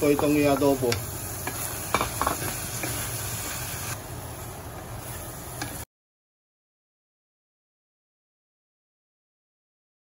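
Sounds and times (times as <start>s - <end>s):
food sizzling in a pan: 0.0s - 5.9s.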